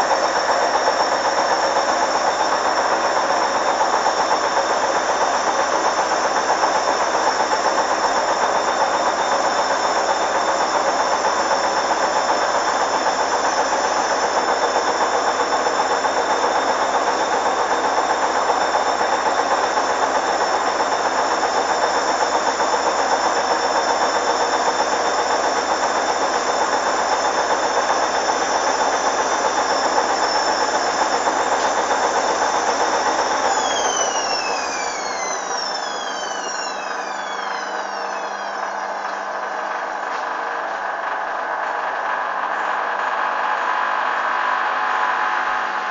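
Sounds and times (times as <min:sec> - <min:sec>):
washing machine spinning: 0:00.0 - 0:45.9.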